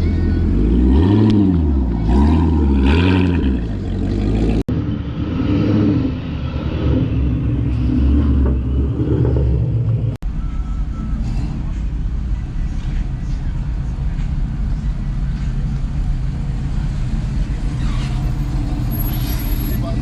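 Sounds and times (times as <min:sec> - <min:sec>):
car engine revving and idling: 0:00.0 - 0:10.2.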